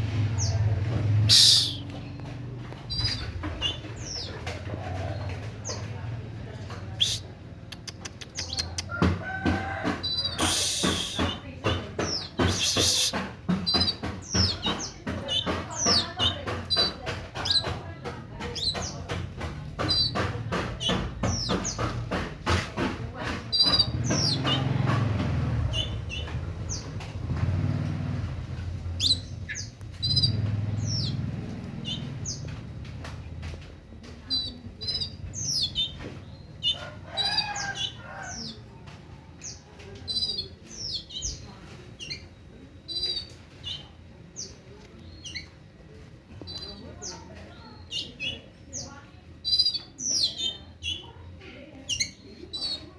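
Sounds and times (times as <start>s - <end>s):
songbird chirping and whistling: 1.3s - 2.0s, 7.0s - 7.3s, 10.1s - 16.9s.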